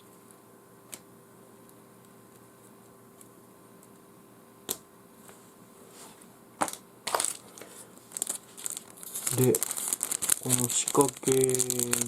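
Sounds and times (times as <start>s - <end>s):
faint steady hum: 0.0s - 12.0s
rustling: 7.1s - 12.0s.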